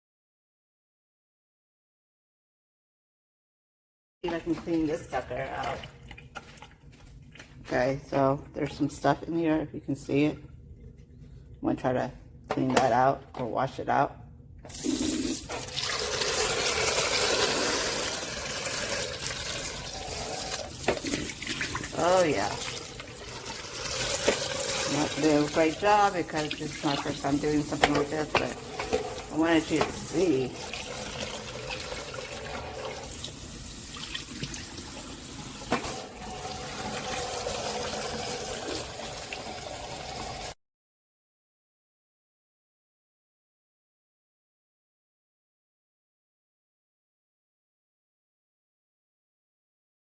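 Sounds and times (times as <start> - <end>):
water running from a tap: 14.7 - 40.6.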